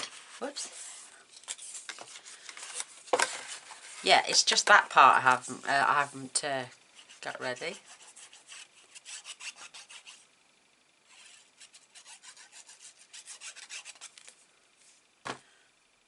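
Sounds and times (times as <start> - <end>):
rubbing strokes on card: 6.9 - 10.3, 11.1 - 14.3.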